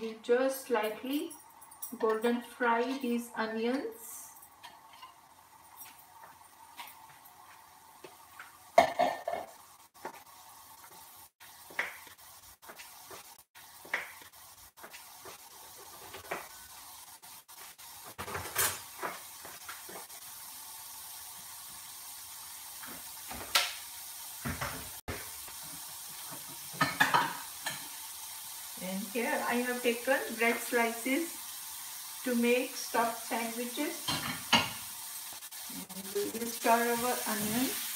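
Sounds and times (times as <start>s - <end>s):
onion frying in oil: 0.0s - 37.9s
utensils and dishes clinking: 0.7s - 6.1s.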